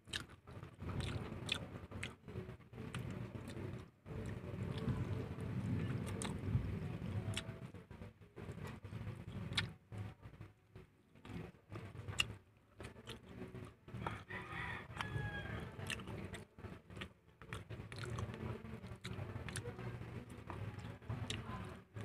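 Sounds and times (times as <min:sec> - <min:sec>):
chewing and biting: 0:00.0 - 0:02.2, 0:02.8 - 0:06.5, 0:08.6 - 0:09.8, 0:11.2 - 0:15.2, 0:15.8 - 0:21.6.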